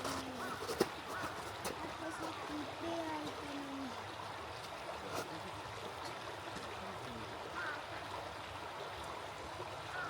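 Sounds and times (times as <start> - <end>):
water bird calls: 0.0 - 4.0, 7.1 - 8.1
small stream running: 0.0 - 10.0.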